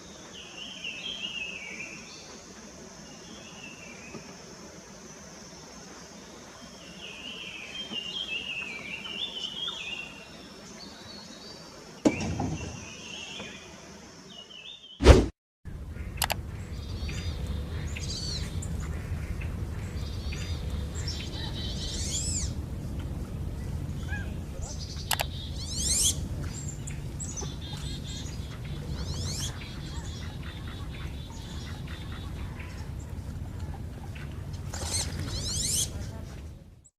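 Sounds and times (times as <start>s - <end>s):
high outdoor hiss: 0.0s - 15.0s, 15.7s - 36.9s
songbird singing: 0.0s - 15.0s, 15.7s - 36.9s
low thump and rumble: 15.7s - 29.1s
high bird chirps: 23.9s - 32.8s.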